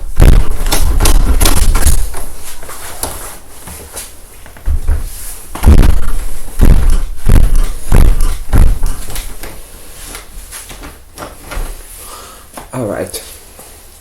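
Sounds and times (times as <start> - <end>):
heavy low thuds: 0.0 - 2.4, 4.6 - 9.5.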